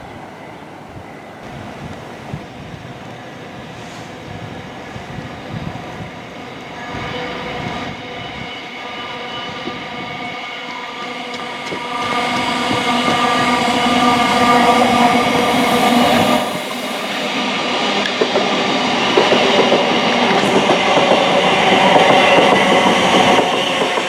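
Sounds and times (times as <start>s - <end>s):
train rumbling on rails: 0.0s - 24.0s
train whine of steady tones: 0.0s - 24.0s.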